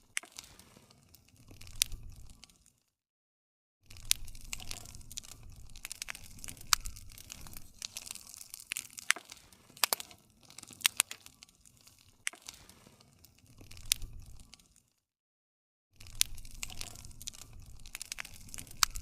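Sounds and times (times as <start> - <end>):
campfire crackling and popping: 0.0 - 2.8, 3.9 - 14.9, 16.0 - 19.0.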